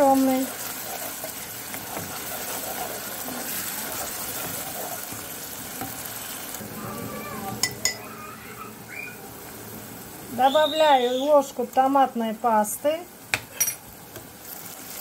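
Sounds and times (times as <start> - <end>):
wooden spatula stirring: 0.0 - 6.6
onion sizzling in a saucepan: 0.0 - 15.0.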